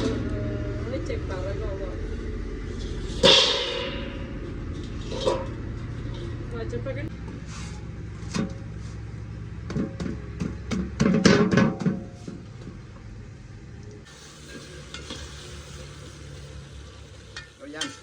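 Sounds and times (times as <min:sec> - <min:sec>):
food sizzling in a pot: 0:14.0 - 0:18.0.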